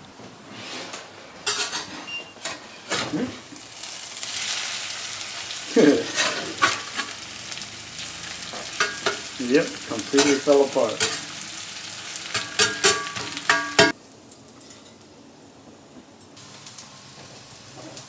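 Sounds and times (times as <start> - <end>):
metal spatula scraping a pan: 0.6 - 3.3, 4.2 - 14.0
potatoes sizzling in a pan: 3.2 - 14.5, 16.4 - 18.0
spatula knocking on pan: 12.3 - 13.9.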